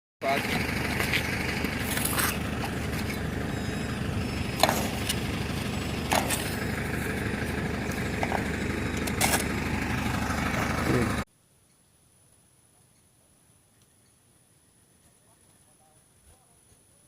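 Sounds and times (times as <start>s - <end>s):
motor running: 0.2s - 11.2s.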